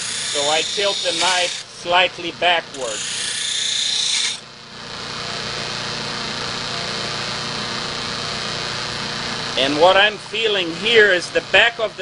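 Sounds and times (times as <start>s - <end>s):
knife grinding on sharpening wheel: 0.0s - 1.8s, 2.7s - 4.4s.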